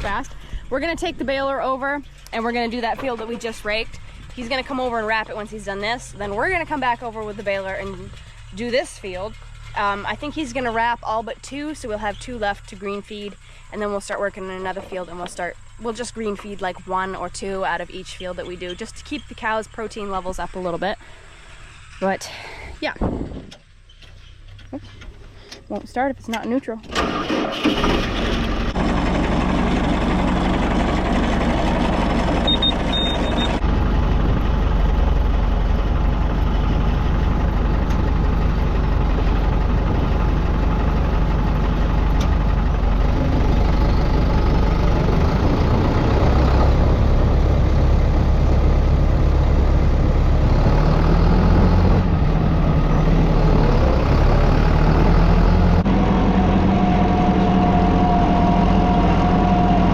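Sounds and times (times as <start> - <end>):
tractor engine running: 0.0 - 59.9
high beep: 32.5 - 33.6.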